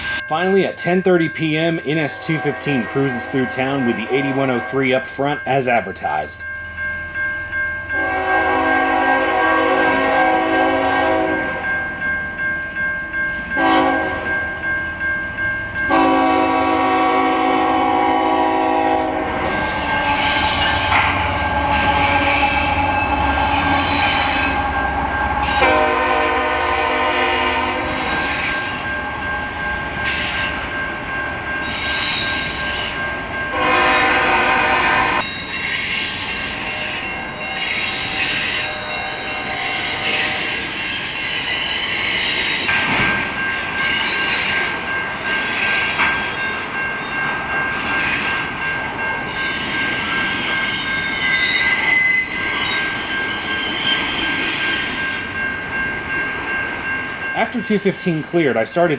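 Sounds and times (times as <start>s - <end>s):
steel wheels squealing on rails: 0.0s - 5.4s, 19.4s - 30.8s, 31.6s - 55.6s
locomotive bell ringing: 0.0s - 58.9s
train rumbling past: 0.0s - 58.9s
train horn blasts: 2.0s - 5.0s, 8.0s - 11.6s, 13.6s - 14.3s, 15.9s - 28.2s, 33.5s - 35.3s, 36.7s - 40.7s.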